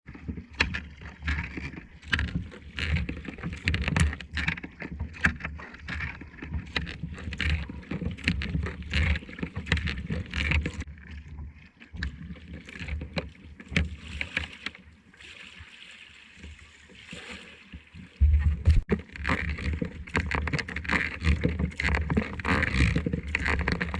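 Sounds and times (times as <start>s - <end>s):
paddle splashing in water: 0.1s - 23.9s
wind rumble on microphone: 18.2s - 19.0s.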